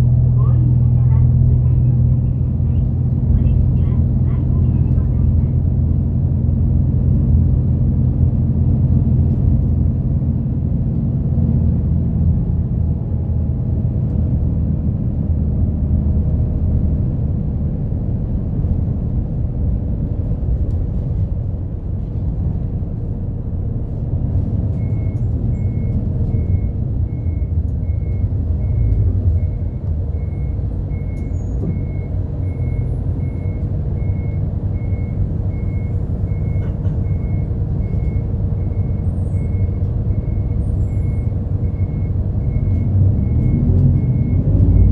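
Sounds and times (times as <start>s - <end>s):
bus engine running: 0.0s - 44.9s.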